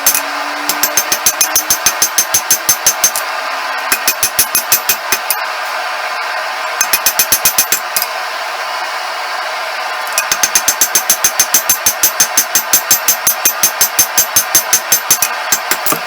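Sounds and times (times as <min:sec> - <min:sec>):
hammer ringing on anvil: 0:00.0 - 0:03.2, 0:10.2 - 0:16.0.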